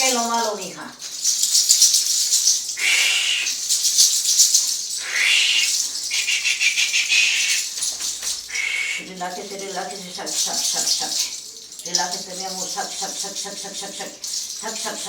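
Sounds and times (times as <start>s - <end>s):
rattle shaking dry rustling: 0.0s - 15.0s
breathy hisses: 2.6s - 9.2s.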